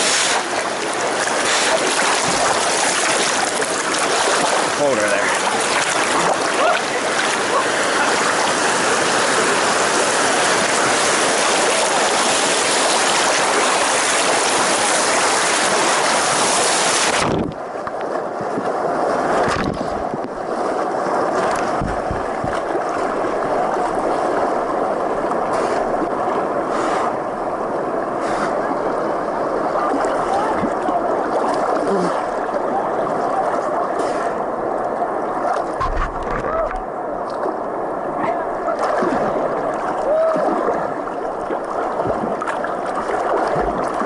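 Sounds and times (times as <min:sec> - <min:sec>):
flowing water: 0:00.0 - 0:44.0
river water rushing: 0:00.0 - 0:44.0
low thumps: 0:35.8 - 0:36.8.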